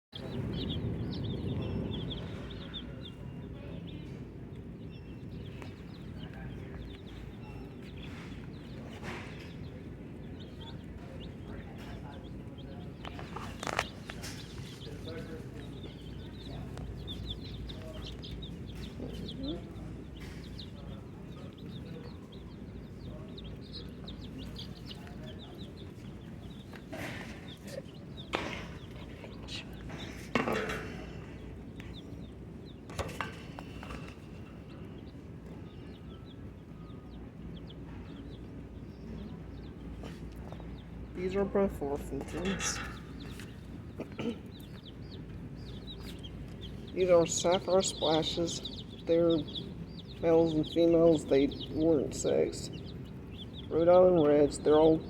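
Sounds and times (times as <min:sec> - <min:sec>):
baby chicks peeping: 0:00.1 - 0:55.0
steady low hum: 0:00.2 - 0:55.0.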